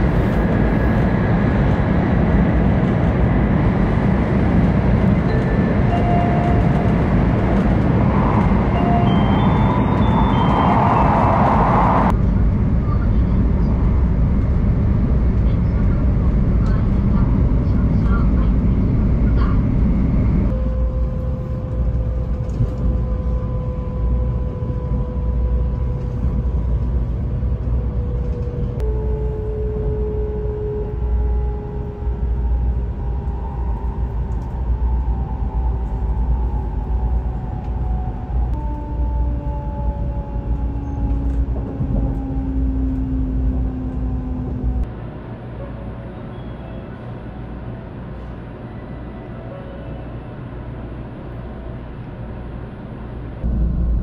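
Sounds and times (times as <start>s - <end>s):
train heavy low rumble: 0.0s - 54.0s
train motors whining: 14.2s - 44.9s.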